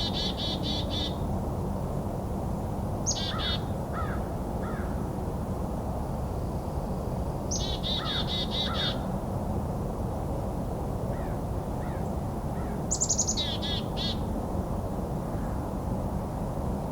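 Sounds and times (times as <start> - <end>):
wild birds calling: 3.1 - 4.9, 7.5 - 9.0, 12.6 - 14.2.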